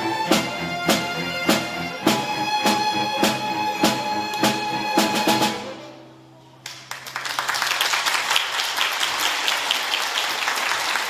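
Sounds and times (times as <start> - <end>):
audience applause: 6.6 - 11.0.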